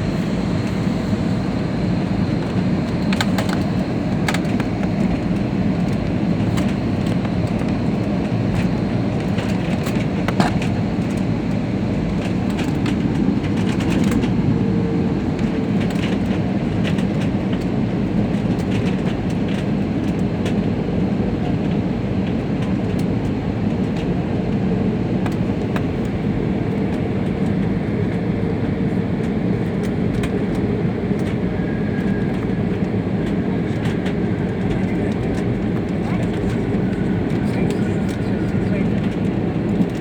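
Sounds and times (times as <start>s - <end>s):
airliner cabin rumble: 0.0s - 40.0s
faint rattles and clicks: 32.1s - 40.0s.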